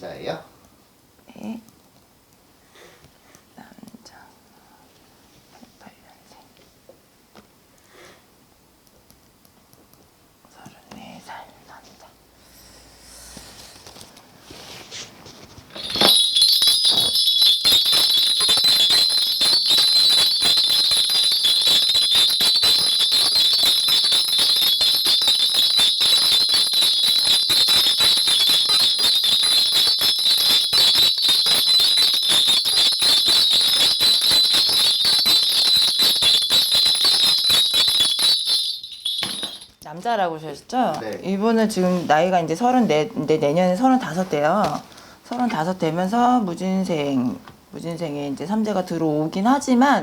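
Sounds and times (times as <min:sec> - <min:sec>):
small metal bells shaken: 0:15.7 - 0:40.1.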